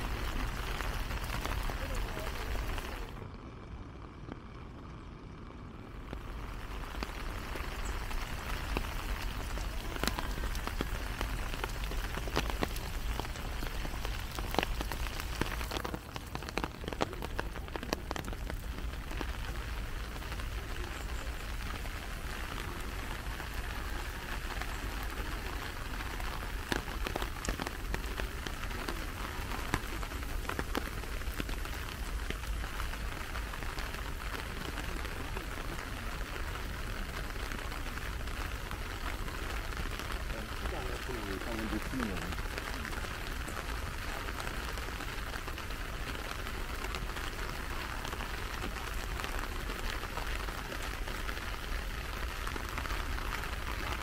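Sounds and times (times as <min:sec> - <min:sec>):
sharp taps of raindrops: 0:00.0 - 0:03.2, 0:06.0 - 0:54.0
steady rain falling: 0:00.0 - 0:54.0.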